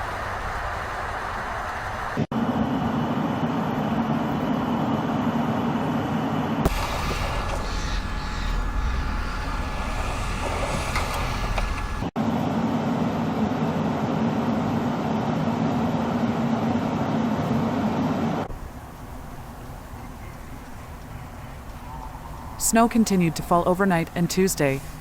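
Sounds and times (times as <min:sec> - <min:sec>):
steady engine hum: 0:00.0 - 0:25.0
engine low rumble: 0:06.5 - 0:25.0.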